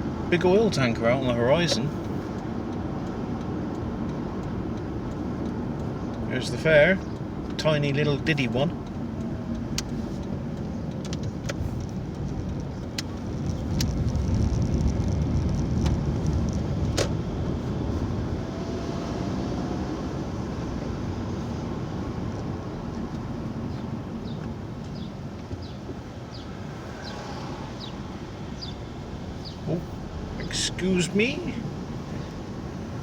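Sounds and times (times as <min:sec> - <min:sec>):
car engine rumble: 0:00.0 - 0:33.0
road noise: 0:00.0 - 0:33.0
sharp clicks: 0:08.8 - 0:14.2.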